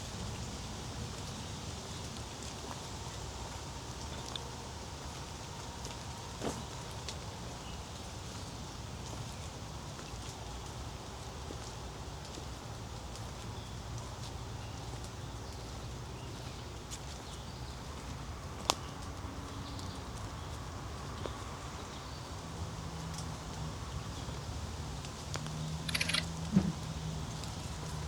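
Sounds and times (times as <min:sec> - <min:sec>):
faint scattered ticks: 0:25.0 - 0:28.0
sharp click: 0:25.9 - 0:26.3.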